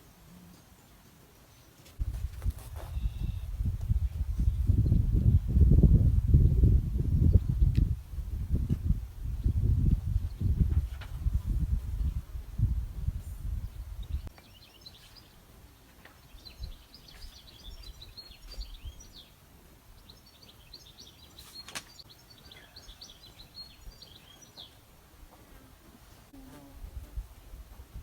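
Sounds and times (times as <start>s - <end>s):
small birds twittering: 13.6s - 24.8s.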